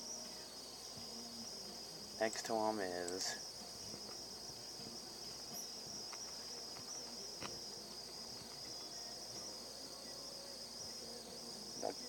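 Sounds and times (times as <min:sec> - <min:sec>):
faint clicks: 0:03.0 - 0:03.3.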